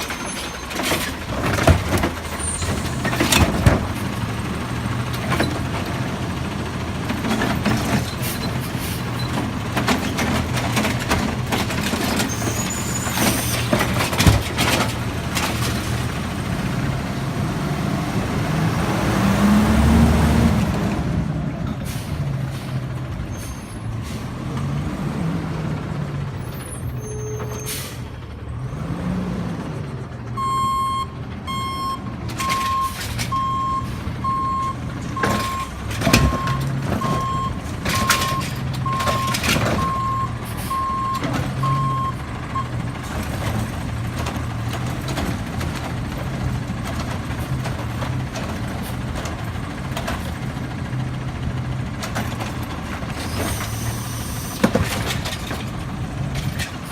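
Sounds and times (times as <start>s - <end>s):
garbage truck engine running: 0.0s - 56.9s
sharp knocks and clanks: 13.2s - 15.8s
reversing beeper: 30.4s - 42.7s.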